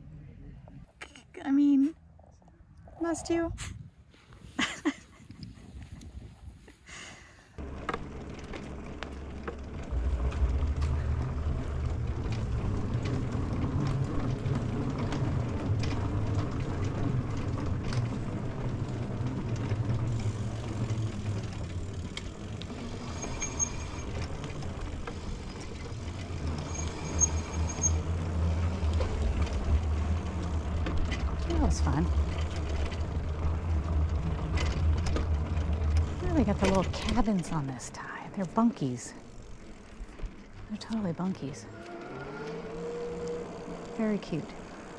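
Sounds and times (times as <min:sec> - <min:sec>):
wind on microphone: 0:02.8 - 0:06.8
bike tyres rolling: 0:06.2 - 0:44.9.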